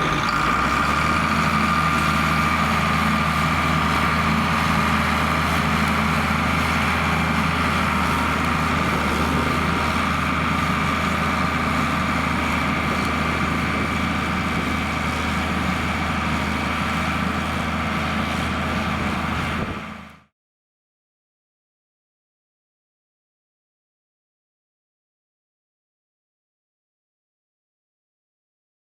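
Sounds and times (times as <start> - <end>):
tractor diesel engine running: 0.0 - 20.3.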